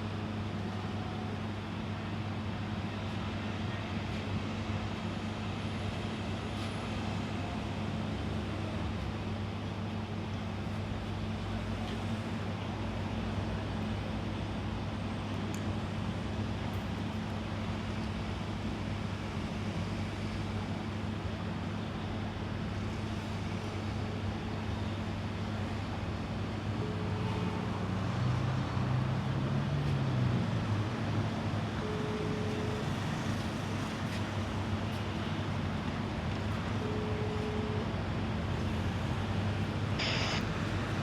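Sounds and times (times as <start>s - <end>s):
short faint tones: 40.0s - 40.5s.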